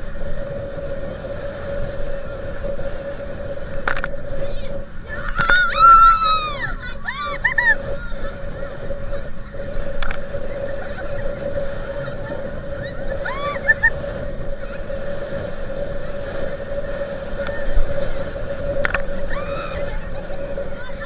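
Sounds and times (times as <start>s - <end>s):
motorboat engine humming: 0.0s - 21.0s
rush of wind and water: 0.0s - 21.0s
rising-and-falling calls: 5.1s - 14.0s, 19.1s - 21.0s.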